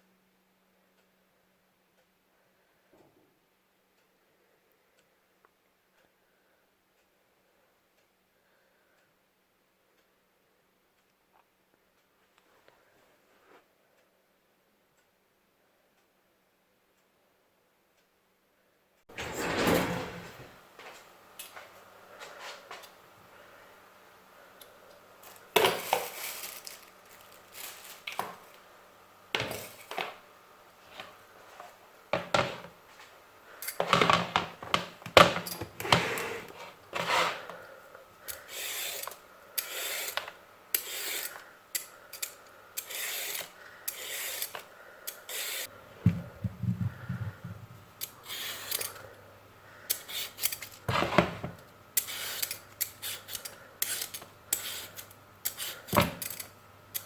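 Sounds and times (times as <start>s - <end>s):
scraping and rubbing strokes: 25.2s - 28.1s, 35.8s - 37.6s, 38.4s - 41.4s, 42.8s - 49.0s
objects clattering: 25.2s - 28.6s, 46.0s - 47.8s.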